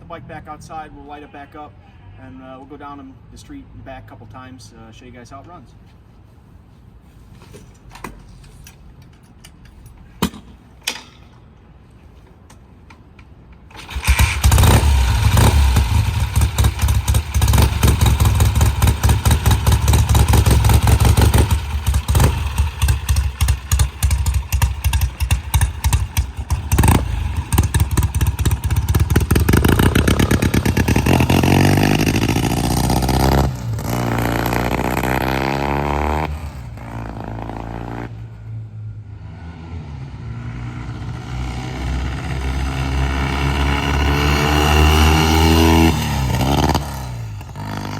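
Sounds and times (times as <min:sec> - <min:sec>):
motorcycle accelerating away: 0:13.7 - 0:47.9
motorcycle engine running: 0:13.8 - 0:38.2, 0:41.0 - 0:47.9.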